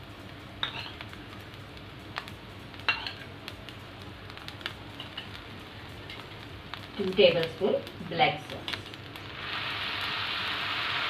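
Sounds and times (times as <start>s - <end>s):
steady low hiss: 0.0s - 11.0s
metal spoon clinking on pan: 0.6s - 1.0s, 2.9s - 3.2s.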